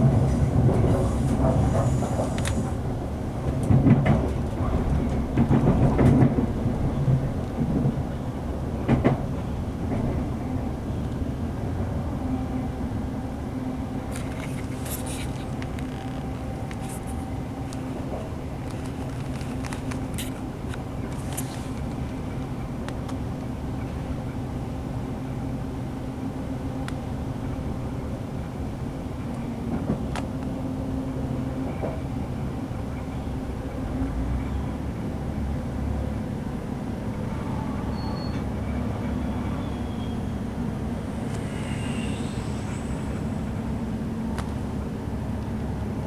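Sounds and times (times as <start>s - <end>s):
train wheels on track: 0.0s - 46.0s
faint high squeals: 37.2s - 44.0s
diesel engine drone: 38.5s - 46.0s.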